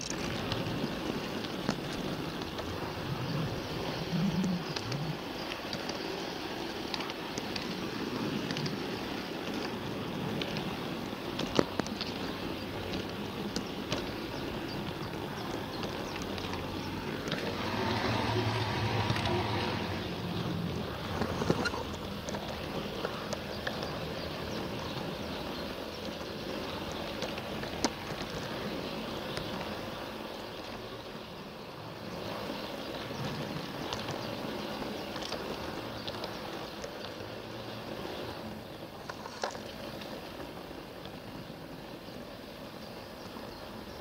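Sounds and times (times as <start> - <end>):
low motor hum: 14.7 - 25.1.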